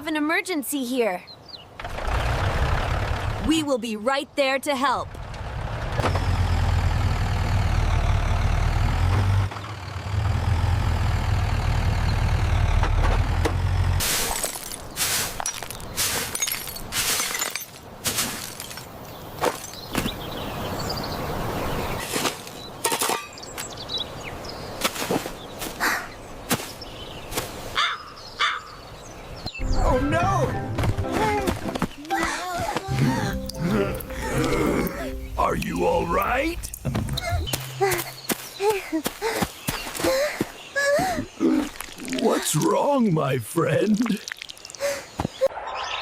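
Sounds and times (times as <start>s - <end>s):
heavy engine rumbling: 5.1s - 14.1s, 32.9s - 38.3s.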